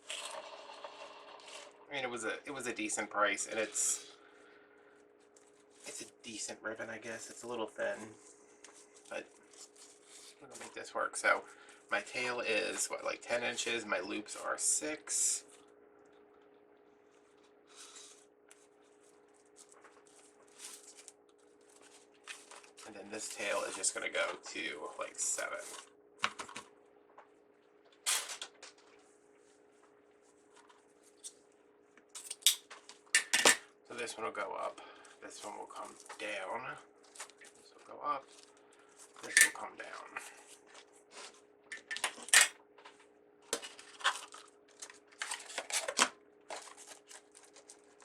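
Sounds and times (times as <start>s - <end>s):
faint steady hum: 0.0s - 48.0s
ribbon crinkling and rustling: 7.1s - 10.8s, 17.0s - 26.6s, 35.0s - 48.0s.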